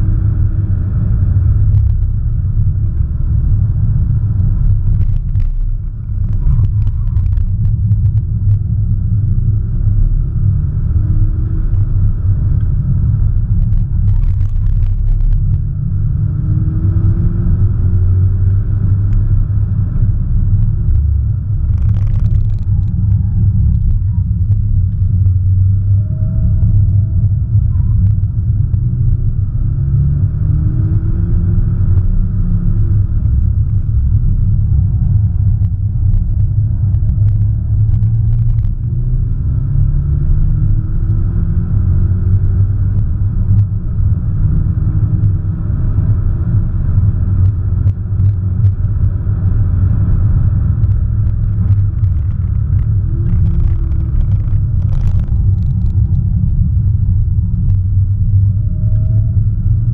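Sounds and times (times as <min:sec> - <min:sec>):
road noise drone: 0:00.0 - 0:59.9.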